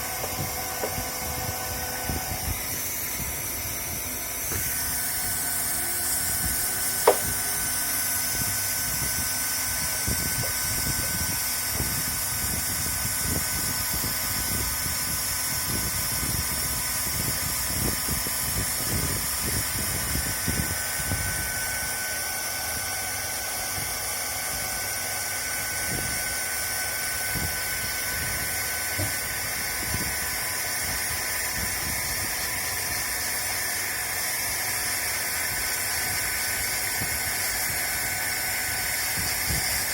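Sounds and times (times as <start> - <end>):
hot air hissing: 0.0 - 11.2
hot-air welder blower whining: 0.0 - 39.9.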